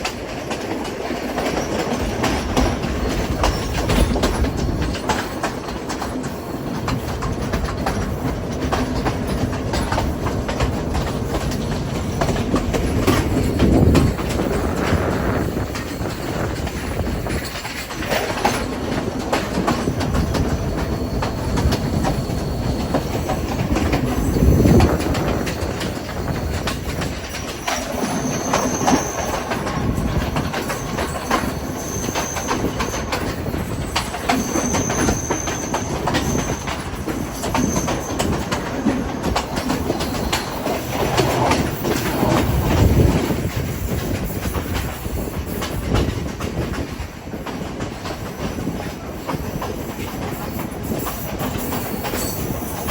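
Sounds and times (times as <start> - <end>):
train wheels clattering on rails: 0.0 - 52.9
high-pitched wheel squeals: 27.3 - 38.4.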